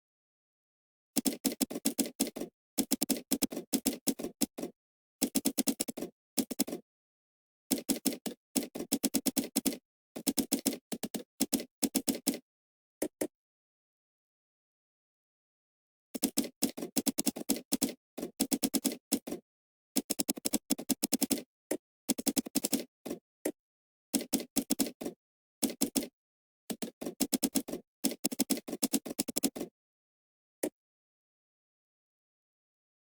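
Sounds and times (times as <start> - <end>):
computer keyboard typing: 1.2 - 4.6, 5.2 - 6.8, 7.7 - 12.4, 16.2 - 19.4, 20.0 - 21.4, 22.1 - 23.2, 24.2 - 26.1, 26.7 - 29.7.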